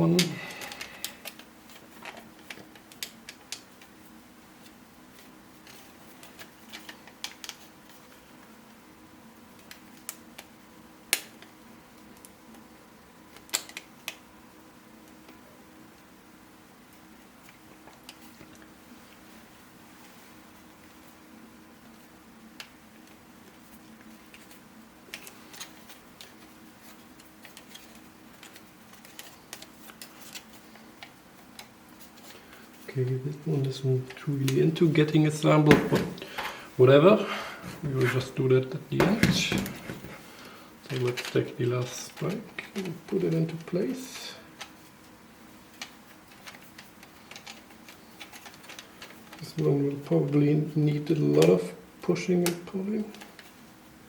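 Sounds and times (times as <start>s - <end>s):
faint steady hum: 0.0s - 54.0s
plastic puzzle pieces clicking: 45.7s - 49.4s.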